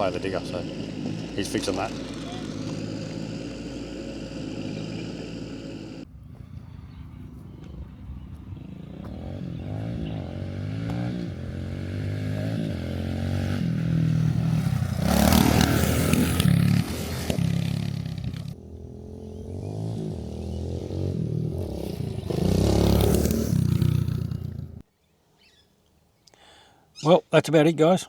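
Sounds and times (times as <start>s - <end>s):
motorcycle engine revving: 0.0s - 6.1s, 7.2s - 24.8s
steady engine running: 0.0s - 6.1s.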